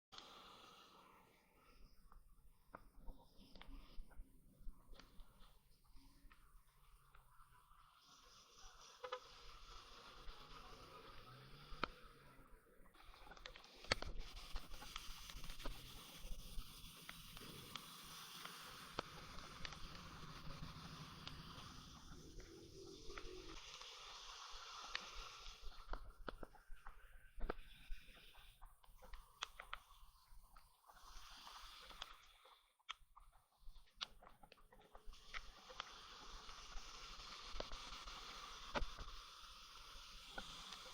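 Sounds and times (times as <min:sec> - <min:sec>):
bicycle tyres hissing on wet road: 0:07.6 - 0:12.3, 0:13.2 - 0:26.2, 0:30.8 - 0:32.4, 0:35.0 - 0:40.9.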